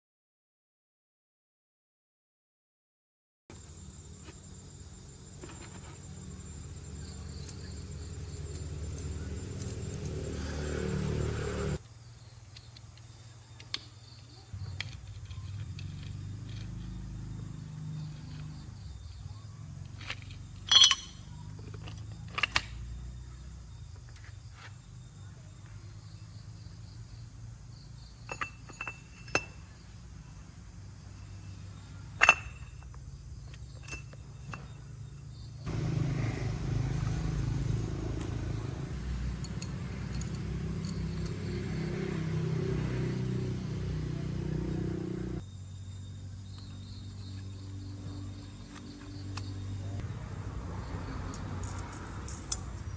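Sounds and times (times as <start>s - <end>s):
metal tools clinking: 19.9s - 22.9s, 28.2s - 29.8s, 31.2s - 34.8s, 38.2s - 41.7s, 51.3s - 52.9s.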